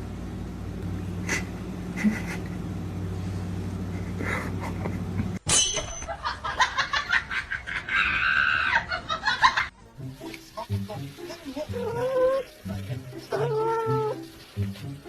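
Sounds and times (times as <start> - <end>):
steady low hum: 0.0 - 8.0
person laughing: 1.2 - 2.7, 3.9 - 5.4, 6.1 - 9.7.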